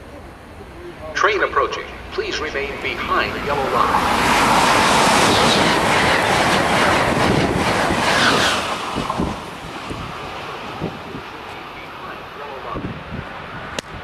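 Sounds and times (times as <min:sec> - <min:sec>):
high-speed train passing: 0:00.0 - 0:14.0
rail clatter: 0:02.7 - 0:11.6.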